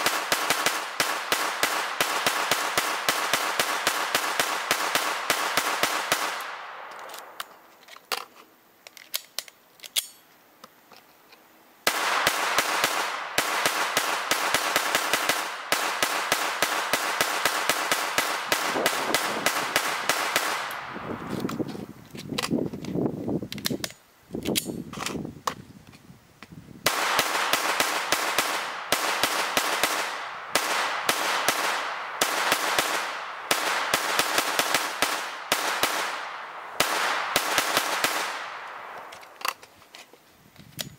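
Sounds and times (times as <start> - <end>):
rifle gunshots: 0.0 - 7.4, 11.9 - 21.0, 26.9 - 39.1.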